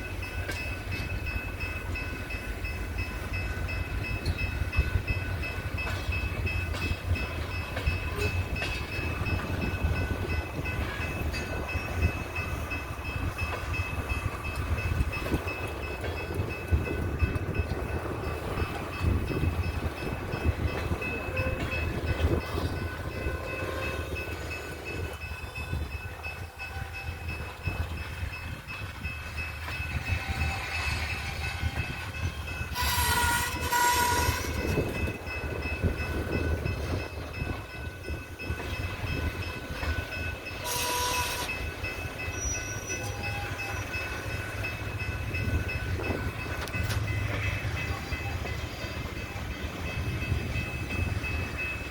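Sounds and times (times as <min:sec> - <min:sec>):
diesel locomotives rumbling: 0:00.0 - 0:51.9
locomotive air horn blasts: 0:32.8 - 0:34.6, 0:40.6 - 0:41.5.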